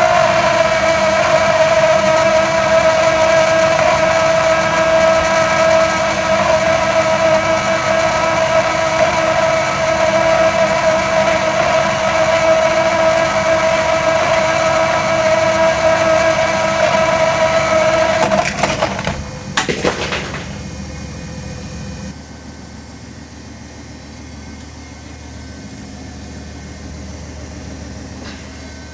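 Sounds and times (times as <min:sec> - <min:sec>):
clatter of knocks and cracks: 0:18.2 - 0:20.8.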